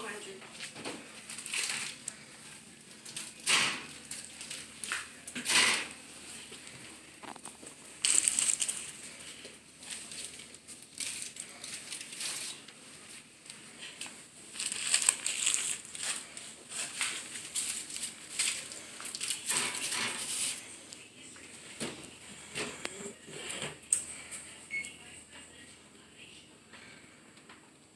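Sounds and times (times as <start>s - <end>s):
aluminium foil crinkling: 0.6s - 5.4s, 7.2s - 20.6s.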